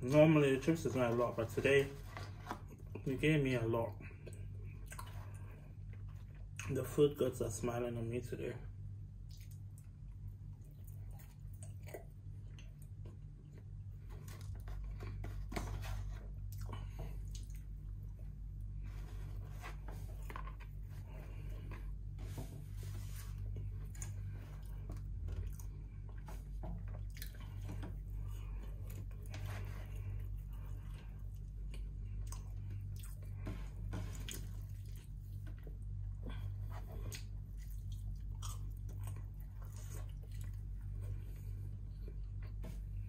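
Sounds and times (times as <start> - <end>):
steady low hum: 0.0 - 43.0
person chewing and biting: 9.2 - 15.4, 23.4 - 35.9, 36.5 - 41.3.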